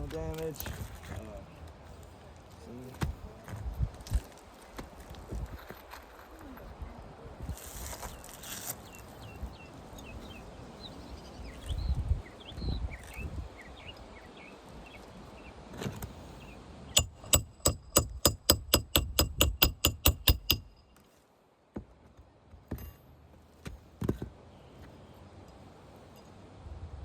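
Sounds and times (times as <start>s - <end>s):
single hammer knocks: 17.0s - 20.8s
hammer striking metal: 17.0s - 20.9s.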